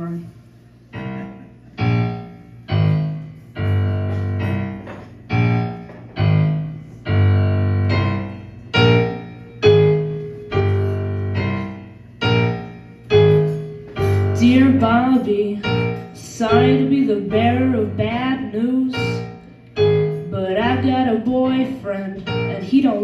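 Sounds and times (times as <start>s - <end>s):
piano chords: 0.0s - 23.0s.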